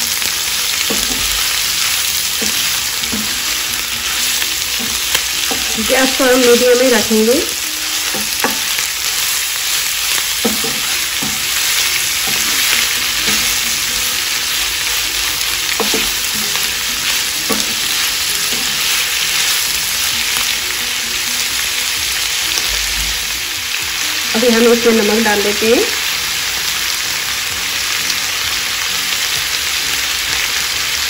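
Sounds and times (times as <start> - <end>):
food sizzling in frying pan: 0.0 - 31.0
wooden spoon knocking pan: 0.8 - 1.5, 8.0 - 8.8, 10.4 - 13.6.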